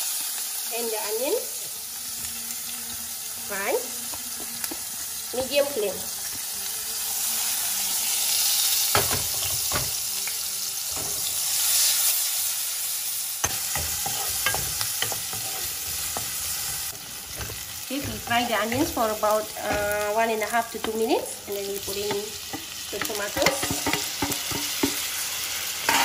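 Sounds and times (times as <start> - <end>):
onion and garlic sizzling in oil: 0.0 - 26.0
spatula scraping and tapping pan: 13.4 - 20.0, 21.8 - 25.1.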